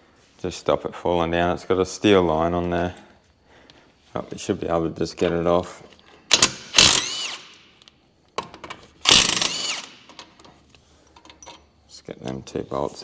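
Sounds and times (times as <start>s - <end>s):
power tool spinning socket: 6.3s - 7.6s, 9.0s - 10.2s.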